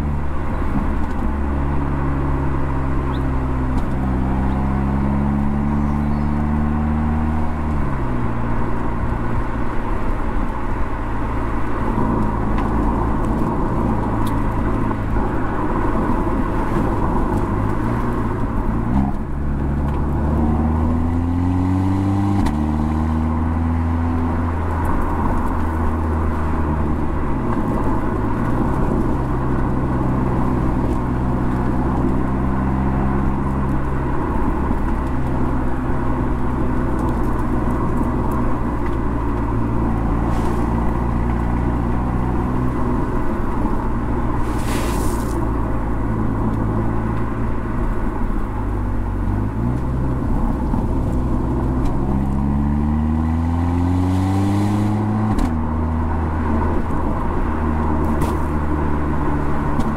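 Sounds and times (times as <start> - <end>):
car engine and exhaust running: 0.0 - 59.9
road rumble: 0.0 - 59.9.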